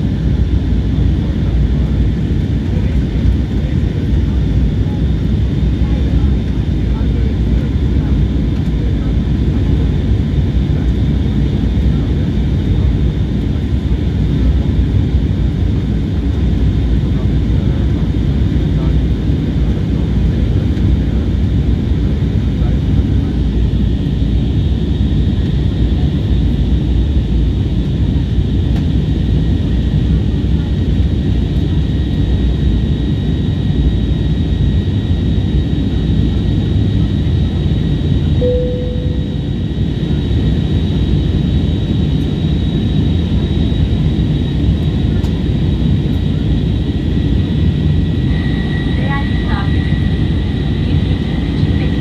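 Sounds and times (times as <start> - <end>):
jet engine low rumble: 0.0 - 52.0
thin high whine: 38.4 - 40.0.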